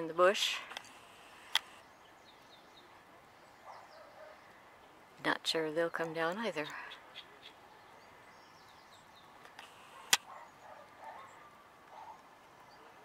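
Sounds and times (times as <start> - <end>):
sharp click: 9.4 - 10.3.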